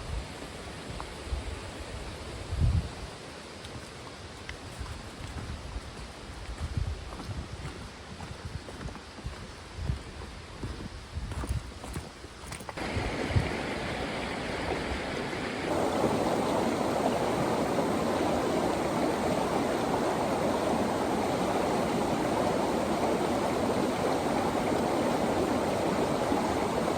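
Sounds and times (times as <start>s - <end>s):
running water rushing: 12.8s - 26.9s.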